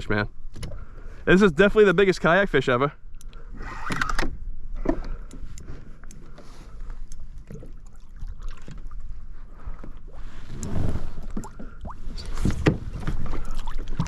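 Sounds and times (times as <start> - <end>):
water sloshing against kayak: 4.6 - 14.0.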